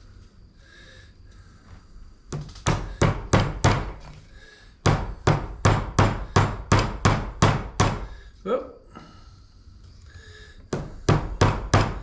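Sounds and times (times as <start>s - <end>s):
hammer driving nails into wood: 2.3s - 4.2s, 4.8s - 8.2s, 10.7s - 12.0s.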